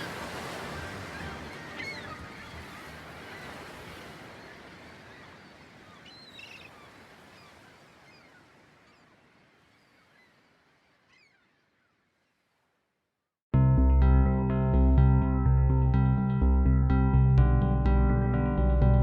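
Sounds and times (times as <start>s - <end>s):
bird chirps: 5.9s - 9.1s.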